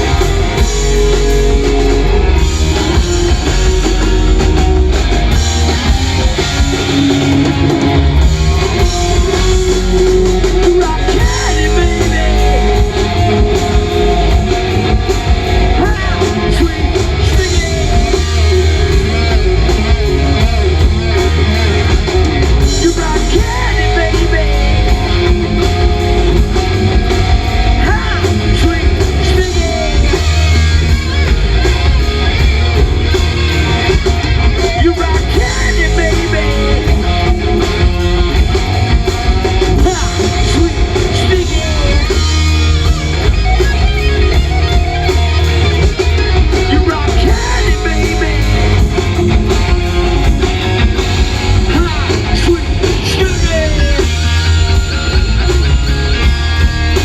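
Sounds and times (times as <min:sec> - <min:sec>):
distorted electric guitars: 0:00.0 - 0:57.0
rock band playing loud: 0:00.0 - 0:57.0
person singing: 0:07.7 - 0:19.4, 0:22.6 - 0:26.4, 0:27.6 - 0:30.6, 0:34.6 - 0:37.8, 0:39.6 - 0:42.8, 0:46.5 - 0:49.5.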